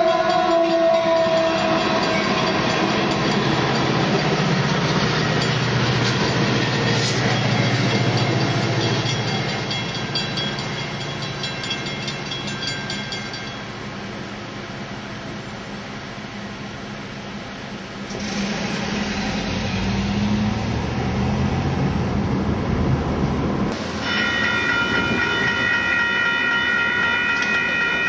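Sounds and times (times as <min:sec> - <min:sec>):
train horn blast: 0:00.0 - 0:03.2, 0:24.0 - 0:28.0
train rumble and wheel clatter: 0:00.0 - 0:28.0.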